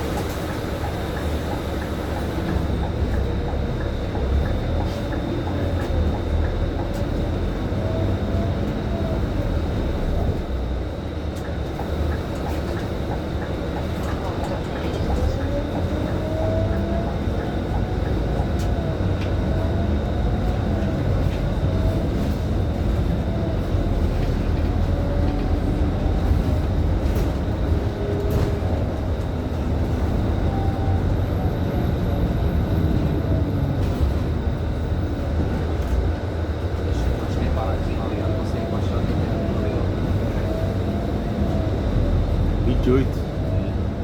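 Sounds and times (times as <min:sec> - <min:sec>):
bus engine rumble: 0:00.0 - 0:44.0
drivetrain whine: 0:00.0 - 0:44.0.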